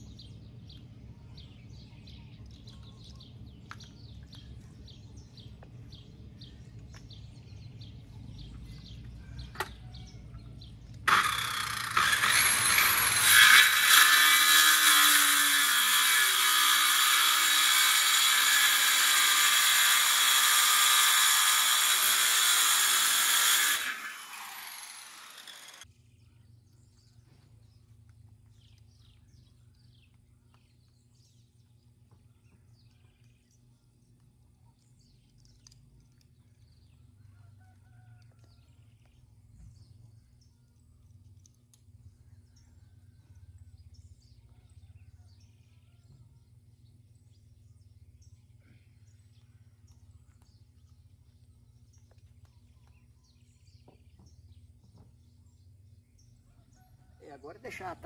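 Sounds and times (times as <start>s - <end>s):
faint birds chirping: 0.0s - 11.0s, 25.4s - 58.0s
electric power tool running: 11.0s - 25.9s.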